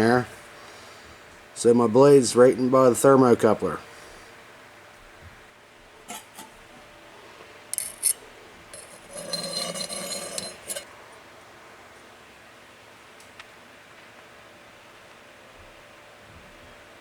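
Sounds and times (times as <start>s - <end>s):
metal scraping against pipe: 6.1s - 6.6s, 7.8s - 10.9s
metal clinking: 7.8s - 10.9s.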